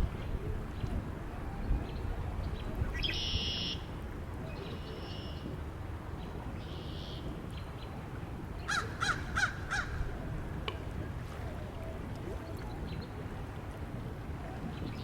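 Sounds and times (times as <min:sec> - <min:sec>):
low wind noise: 0:00.0 - 0:15.0
crow cawing: 0:08.7 - 0:09.9.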